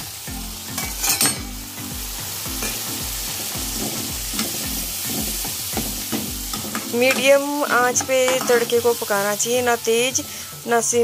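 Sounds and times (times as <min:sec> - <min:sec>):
onions sizzling in hot oil: 0:00.0 - 0:11.0
ladle stirring in a pan: 0:02.6 - 0:08.7.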